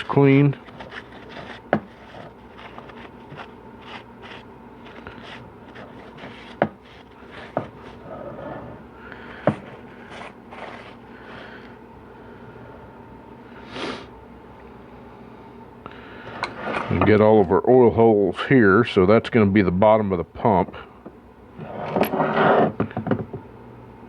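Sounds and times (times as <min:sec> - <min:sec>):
scraping and rubbing strokes: 0:00.0 - 0:08.8, 0:09.6 - 0:11.4.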